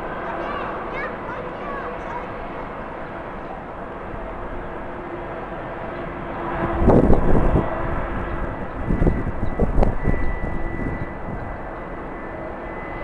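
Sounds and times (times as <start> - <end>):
distant jet engines whining: 0.0 - 13.0
wind buffeting microphone: 3.9 - 12.4.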